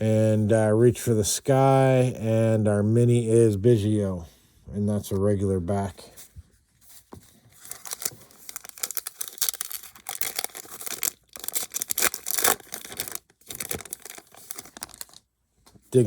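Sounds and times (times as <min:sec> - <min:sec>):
foil wrapper crinkling and tearing: 0:07.6 - 0:15.2.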